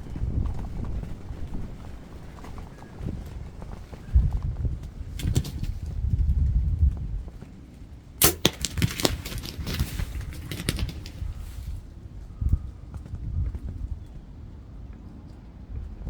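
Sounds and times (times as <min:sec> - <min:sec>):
rustling: 0:08.2 - 0:11.9.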